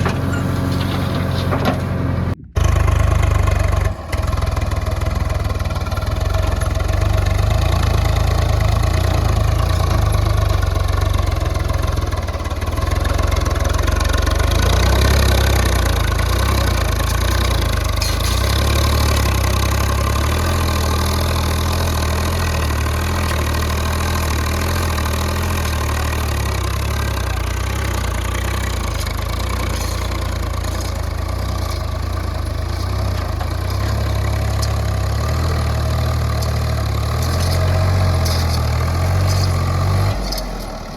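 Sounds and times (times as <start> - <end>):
large diesel engine running: 0.0 - 40.9.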